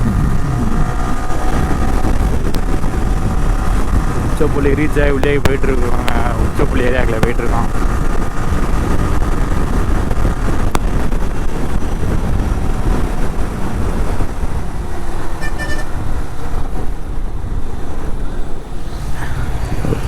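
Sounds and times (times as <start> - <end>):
wind and road noise: 0.0 - 20.0
vehicle horn toot: 15.4 - 16.0.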